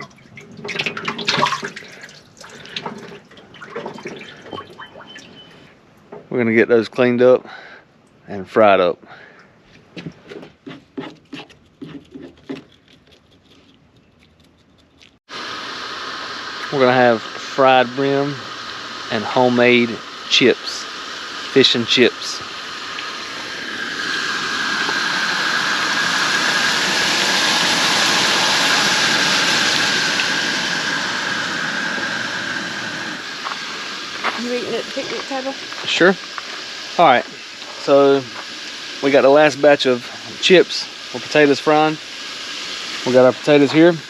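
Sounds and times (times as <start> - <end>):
oil frying hiss: 15.3 - 44.0.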